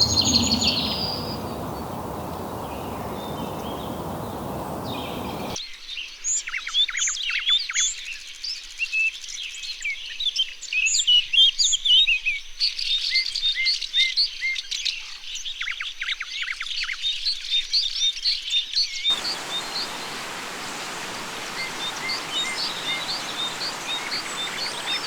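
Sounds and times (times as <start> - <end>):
birds chirping and whistling: 0.0 - 5.6, 19.1 - 25.0
steady rushing noise: 0.0 - 5.6, 19.1 - 25.0.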